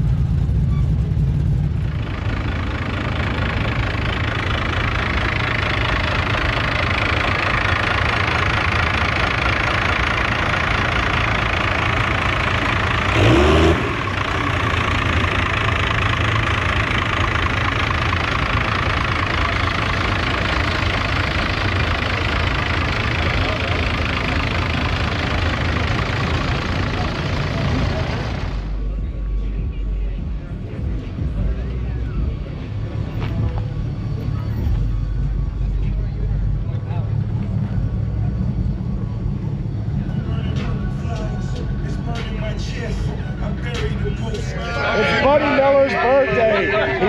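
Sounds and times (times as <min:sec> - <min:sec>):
vehicle engine idling: 0:00.0 - 0:47.0.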